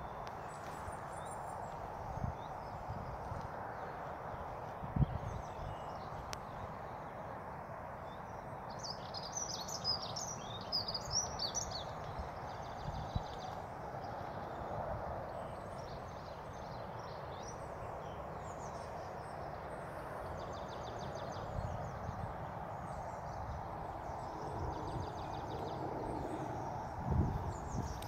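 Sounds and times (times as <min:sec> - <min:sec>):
outdoor background hiss: 0:00.0 - 0:28.0
songbirds singing and chirping: 0:00.0 - 0:28.0.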